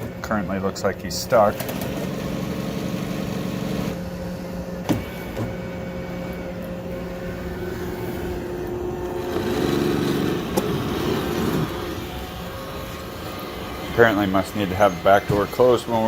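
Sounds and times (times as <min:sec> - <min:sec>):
robot vacuum motor hum: 0:01.3 - 0:16.0.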